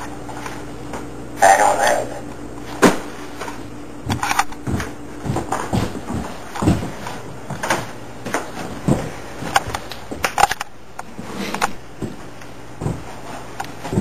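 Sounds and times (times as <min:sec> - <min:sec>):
knocks and clattering thuds: 0:04.1 - 0:10.3.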